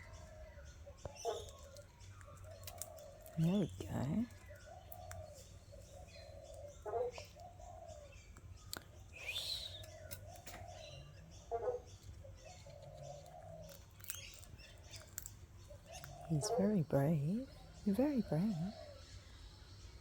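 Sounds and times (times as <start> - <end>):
low cooing bird call: 0.0 - 20.0
rising bird chirp: 5.3 - 12.0.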